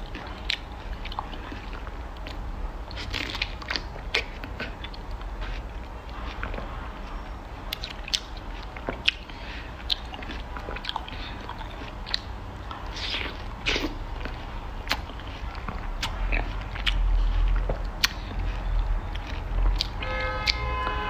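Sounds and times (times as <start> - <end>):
crunchy biting and chewing: 0.0 - 20.7.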